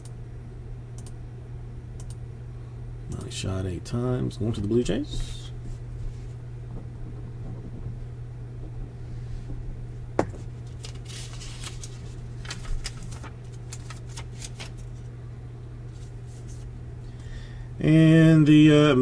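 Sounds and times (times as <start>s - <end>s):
low room hum: 0.0s - 19.0s
small clicks and rustles: 10.4s - 15.1s.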